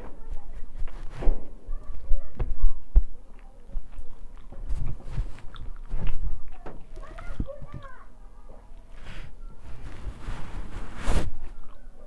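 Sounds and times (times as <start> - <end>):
chewing and lip-smacking: 2.8 - 8.9.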